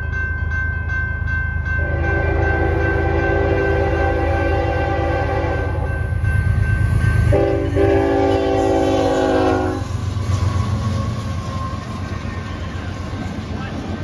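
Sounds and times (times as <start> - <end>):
diesel locomotive engines rumbling: 0.0 - 14.0
locomotive air horn blasts: 1.8 - 5.9, 7.3 - 10.0.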